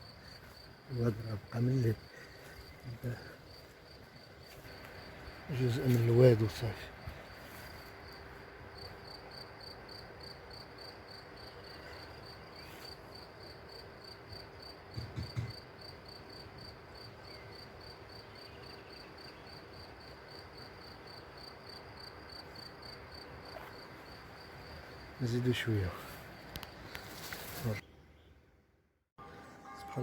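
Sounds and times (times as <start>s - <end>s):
cricket chirping: 0.0s - 28.3s.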